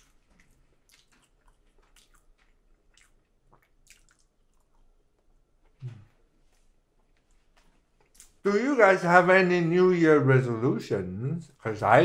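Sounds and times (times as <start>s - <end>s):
wet mouth clicks and smacks: 0.0s - 4.9s, 8.0s - 8.4s
chewing: 0.0s - 8.4s.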